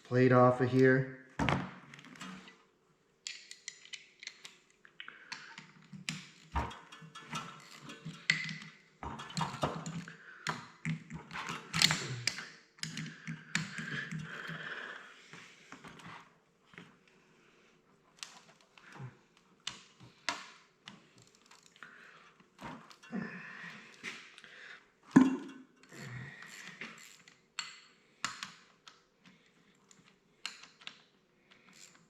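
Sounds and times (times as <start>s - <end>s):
hand tools clicking and scraping metal: 3.3s - 14.6s.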